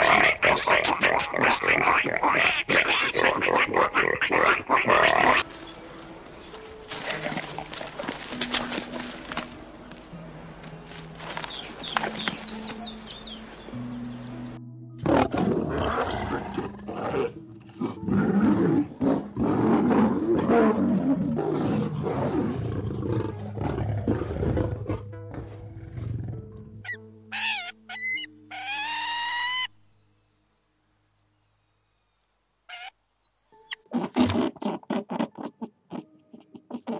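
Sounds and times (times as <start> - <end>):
background music: 4.8 - 30.6, 33.4 - 36.9
high rising bird calls: 11.5 - 14.6, 26.9 - 29.8
lioness roaring: 15.0 - 26.4.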